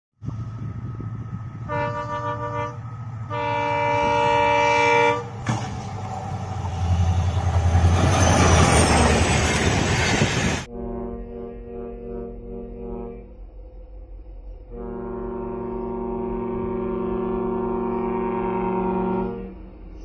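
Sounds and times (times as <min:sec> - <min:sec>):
train passing with deep rumble: 0:00.2 - 0:20.0
locomotive horn blasts: 0:01.5 - 0:06.1, 0:10.6 - 0:13.4, 0:14.7 - 0:19.7.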